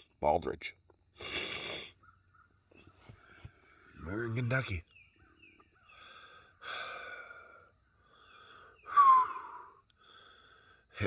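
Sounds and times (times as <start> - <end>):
man breathing out heavily: 1.2 - 2.0, 5.9 - 10.9.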